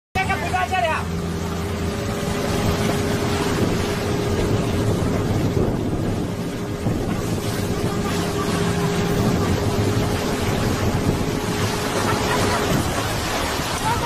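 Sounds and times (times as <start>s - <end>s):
boat engine running: 0.2s - 14.0s
water rushing along hull: 0.2s - 14.0s
wind buffeting microphone: 0.8s - 14.0s.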